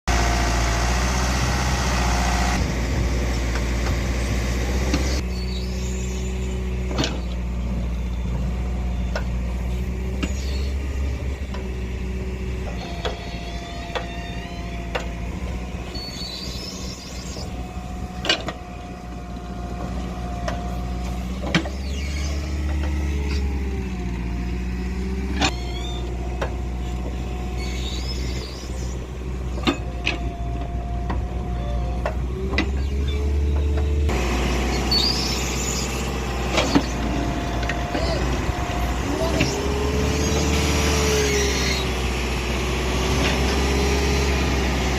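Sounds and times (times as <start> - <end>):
diesel engine under load: 0.0 - 44.9
high squeals: 5.2 - 11.2, 12.7 - 19.0, 20.3 - 23.7, 25.4 - 26.2, 26.8 - 30.4, 32.6 - 42.2.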